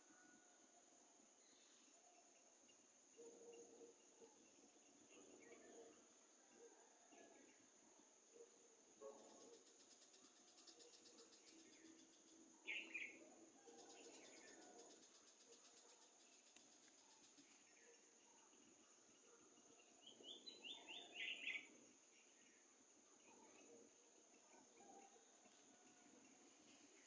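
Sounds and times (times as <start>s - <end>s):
faint bird chirps: 8.3s - 27.0s.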